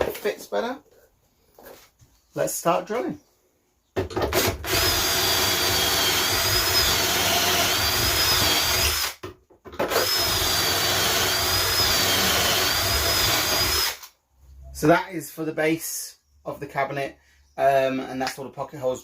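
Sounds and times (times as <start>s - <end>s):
power drill whining: 4.3s - 9.2s, 9.8s - 14.1s.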